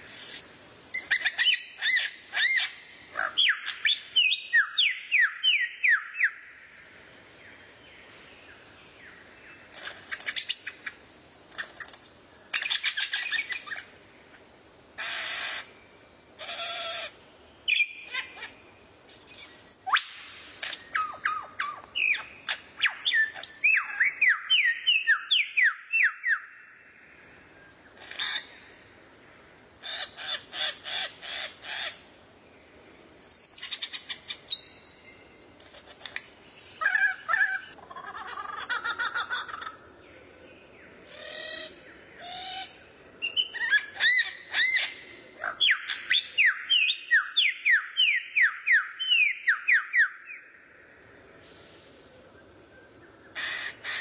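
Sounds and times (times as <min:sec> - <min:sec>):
harsh rasping bird calls: 0:15.0 - 0:15.8, 0:16.4 - 0:18.6, 0:27.9 - 0:28.8, 0:29.8 - 0:32.1, 0:53.2 - 0:54.0
songbird whistled notes: 0:19.1 - 0:20.2.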